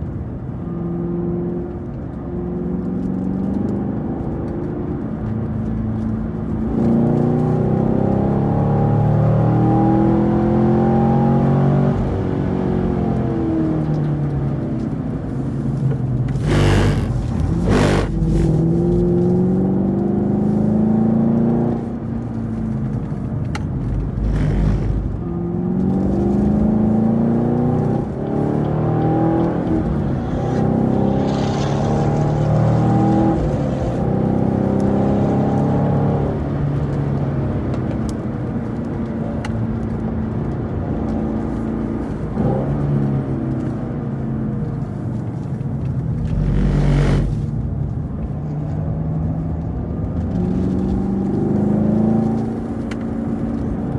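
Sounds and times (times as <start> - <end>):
car engine revving: 15.6 - 37.2, 44.7 - 48.3
short bursts of harsh noise: 16.4 - 18.5.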